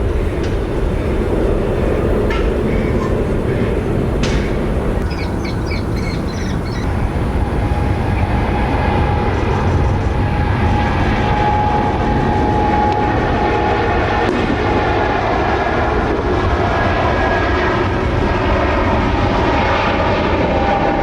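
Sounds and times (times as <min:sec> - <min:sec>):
jet engines roaring: 0:00.0 - 0:21.0
steady-pitched engine whine: 0:00.0 - 0:21.0.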